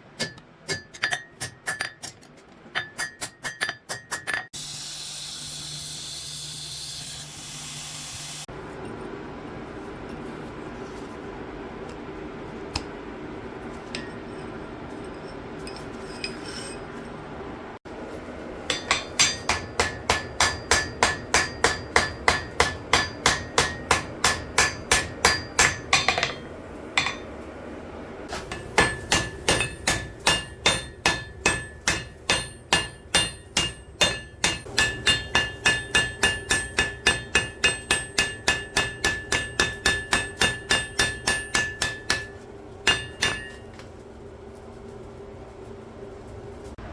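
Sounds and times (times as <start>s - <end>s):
hammer striking anvil: 0.2s - 2.2s, 2.8s - 4.6s, 18.7s - 27.3s, 28.3s - 43.9s.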